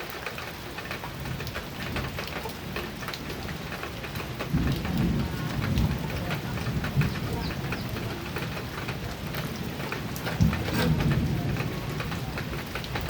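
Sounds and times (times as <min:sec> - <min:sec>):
heavy rain on a metal roof: 0:00.0 - 0:13.0
thunder rumbling: 0:01.1 - 0:13.0.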